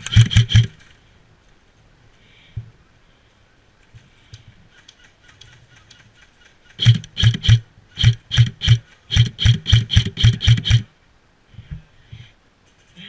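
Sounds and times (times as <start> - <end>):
airsoft gun shots: 0.0 - 0.8, 6.8 - 10.9.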